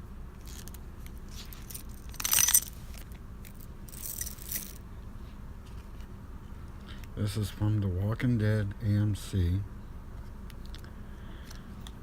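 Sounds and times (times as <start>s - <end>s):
metal tag chain scraping and rattling: 0.4s - 4.8s.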